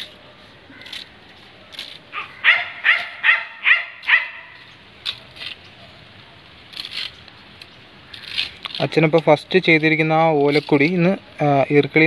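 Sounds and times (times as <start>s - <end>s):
dog barking: 2.2s - 4.5s.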